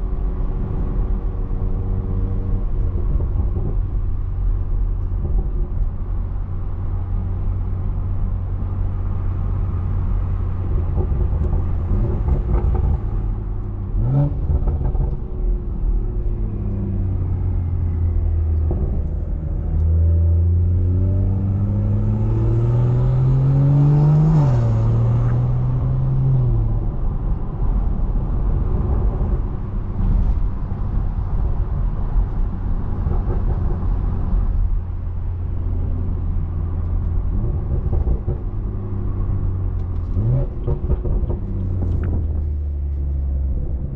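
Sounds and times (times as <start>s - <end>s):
car engine droning and revving: 0.0s - 43.9s.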